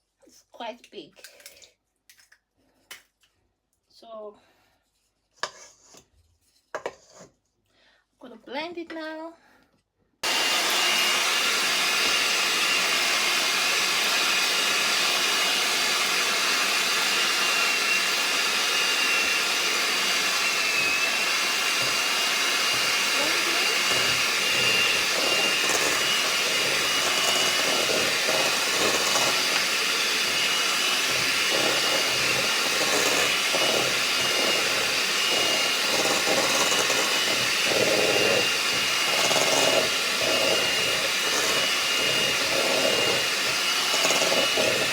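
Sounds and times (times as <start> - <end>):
electric mixer motor whining: 10.2 - 44.9.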